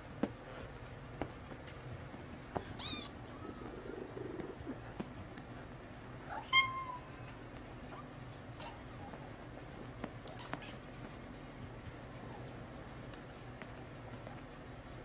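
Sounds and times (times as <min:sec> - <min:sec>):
cat meowing: 0:02.7 - 0:04.0, 0:06.3 - 0:07.2.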